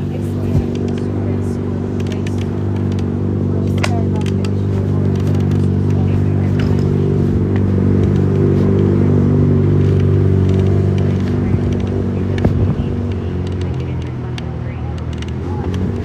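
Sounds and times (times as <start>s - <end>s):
engine idling hum: 0.0s - 16.0s
phone handling clicks and rustle: 1.9s - 3.1s, 3.7s - 8.9s, 9.8s - 16.0s.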